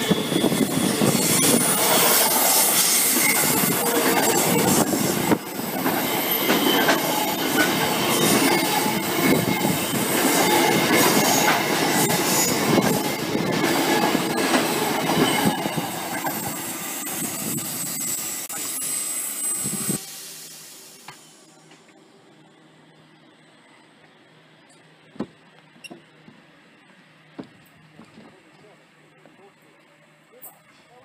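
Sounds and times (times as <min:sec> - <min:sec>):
high wheel squeal: 0:00.0 - 0:21.4.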